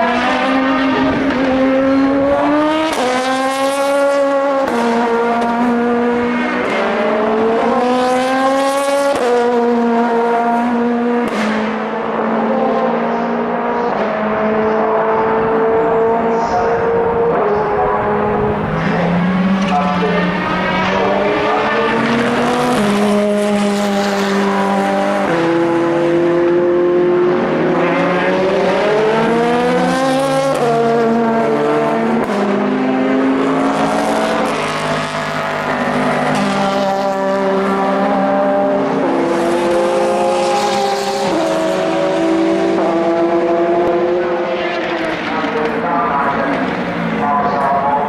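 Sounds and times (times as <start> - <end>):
race car engines accelerating: 0.0 - 48.0.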